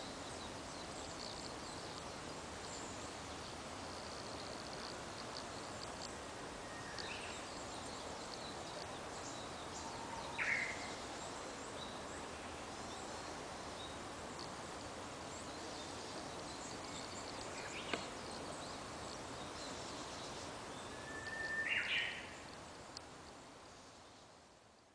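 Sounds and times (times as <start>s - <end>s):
background hiss: 0.0s - 24.9s
bird calls: 19.4s - 22.4s.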